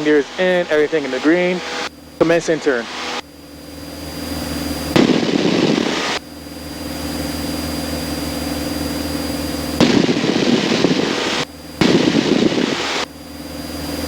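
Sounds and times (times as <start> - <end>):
aircraft piston engine drone: 0.0 - 14.0
loud rushing noise: 4.9 - 6.2, 9.8 - 13.1.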